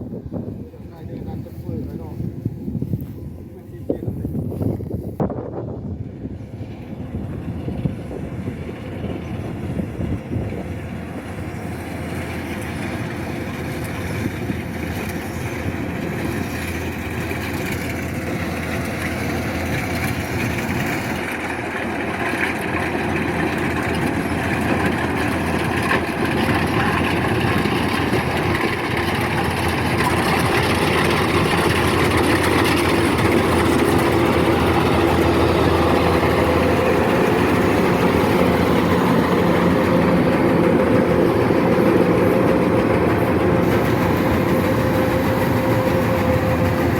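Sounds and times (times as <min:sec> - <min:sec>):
combine harvester droning: 0:00.0 - 0:46.9.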